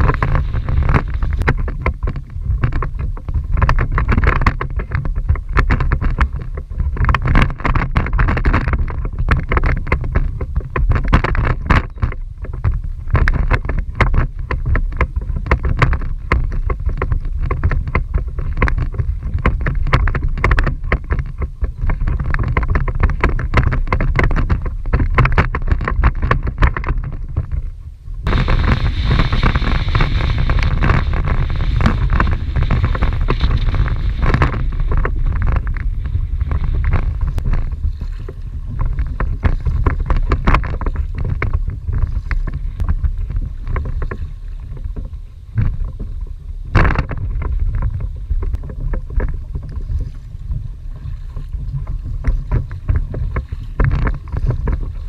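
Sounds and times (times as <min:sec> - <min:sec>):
water slapping against hull: 0:00.0 - 0:55.0
wind buffeting microphone: 0:00.0 - 0:55.0.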